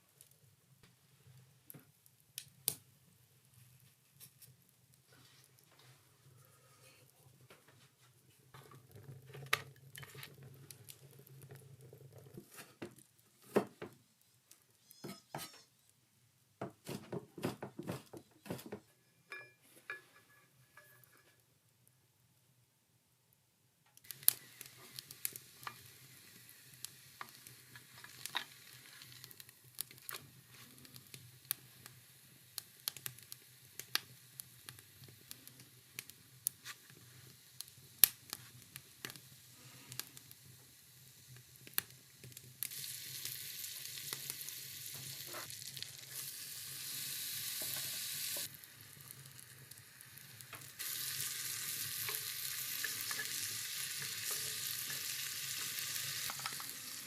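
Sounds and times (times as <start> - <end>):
food sizzling in a pan: 24.0 - 57.0.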